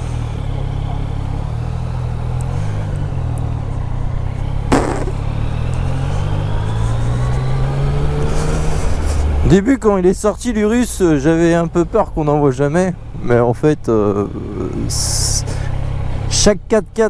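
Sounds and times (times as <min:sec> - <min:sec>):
motorcycle engine running: 0:00.0 - 0:09.4
sharp click: 0:04.7 - 0:05.8.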